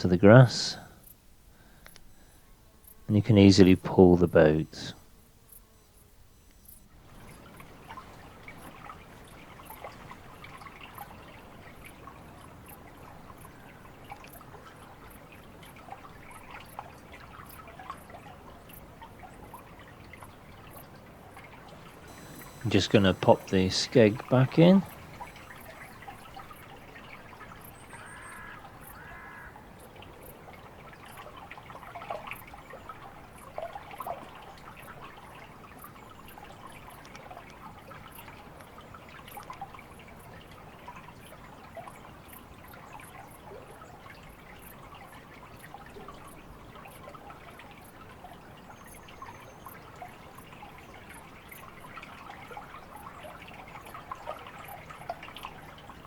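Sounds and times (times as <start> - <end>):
small ticks: 1.8 - 3.1, 5.5 - 11.2, 21.4 - 26.8, 35.8 - 39.6
water trickling and dripping: 7.1 - 56.0
bird calling: 22.0 - 26.6.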